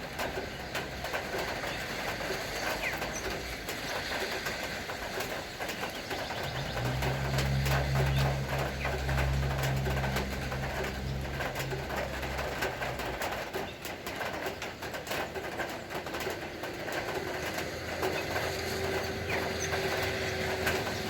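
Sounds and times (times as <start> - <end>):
rain dripping: 0.0 - 21.0
low motor hum: 6.1 - 13.6, 16.8 - 21.0.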